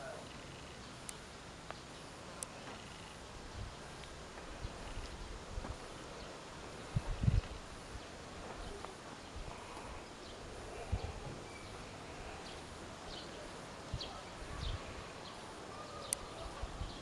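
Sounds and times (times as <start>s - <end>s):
faint bird chirps: 5.9s - 17.0s.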